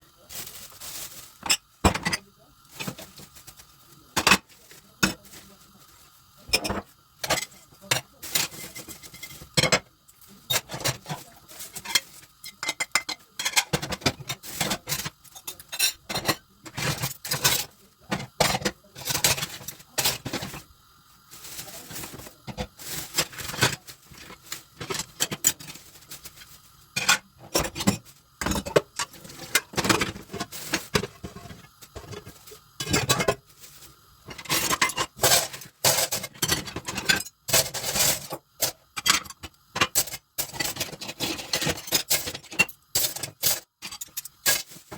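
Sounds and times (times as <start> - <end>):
crockery and cutlery clinking: 10.5 - 20.6.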